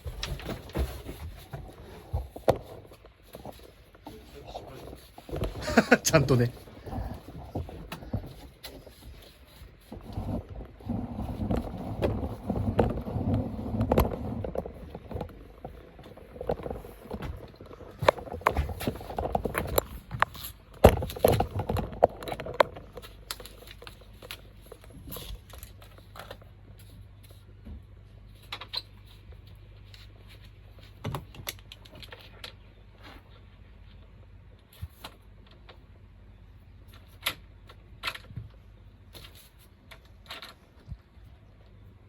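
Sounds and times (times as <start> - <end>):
low uneven rumble: 0.0 - 28.4.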